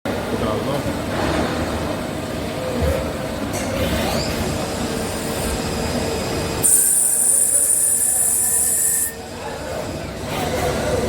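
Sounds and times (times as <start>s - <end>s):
loud high-pitched squeal: 6.6s - 9.2s.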